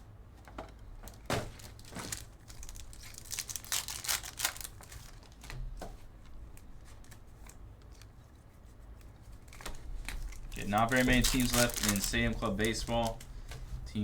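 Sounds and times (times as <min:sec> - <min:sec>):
foil wrappers crinkling and tearing: 0:01.1 - 0:05.8, 0:09.4 - 0:13.6.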